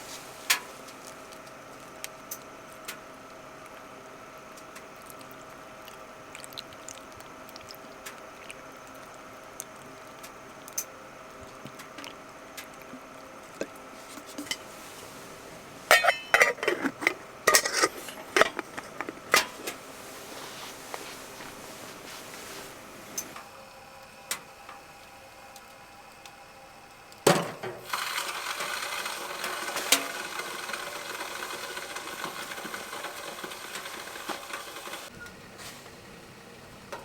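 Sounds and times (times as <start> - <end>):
low steady hum: 0.0 - 27.8
metal cookware clinking: 15.9 - 19.6.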